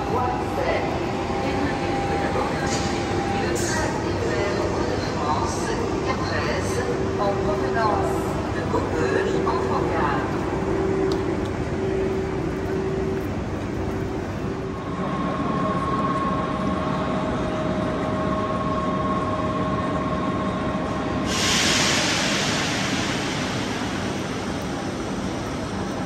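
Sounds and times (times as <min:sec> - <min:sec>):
loud hiss of air: 0:21.2 - 0:26.0.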